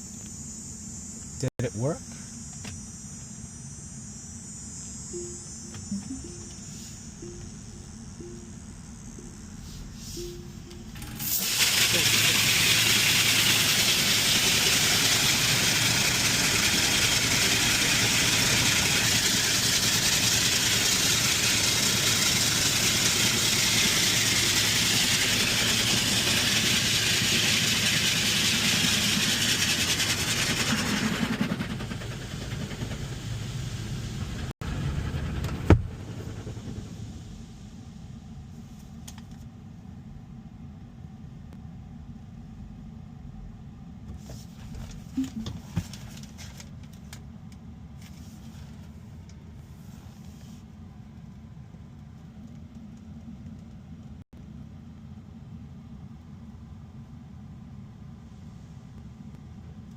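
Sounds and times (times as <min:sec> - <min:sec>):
high-pressure water jets spraying: 0:11.0 - 0:34.3.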